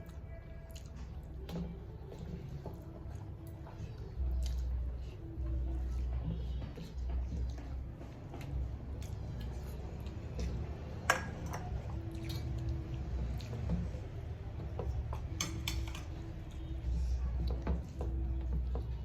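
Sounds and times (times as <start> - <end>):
dishes and utensils clinking: 11.0 - 12.6, 15.1 - 16.3.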